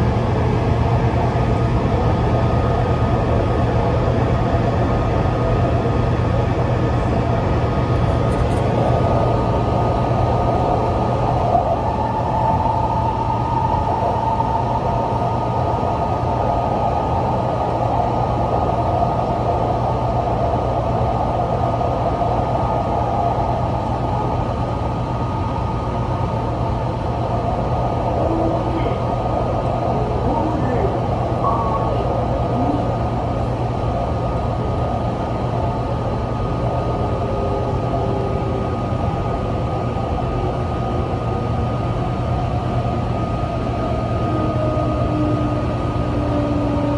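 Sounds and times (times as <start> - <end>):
metro train wheels rumbling: 0.0 - 46.9.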